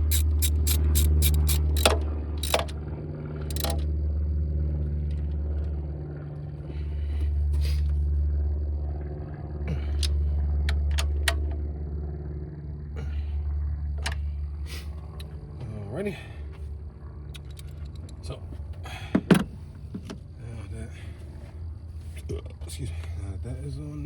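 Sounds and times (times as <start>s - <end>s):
metal clicks: 0.0s - 2.8s, 3.5s - 3.9s
ratchet clicks: 0.0s - 2.8s, 3.5s - 3.9s
loud low hum: 0.0s - 24.0s.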